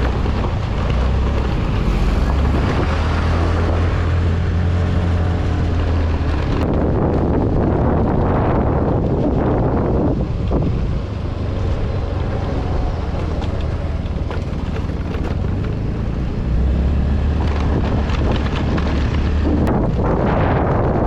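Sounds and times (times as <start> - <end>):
vehicle engine running: 0.0 - 8.5
wind buffeting microphone: 0.0 - 21.0.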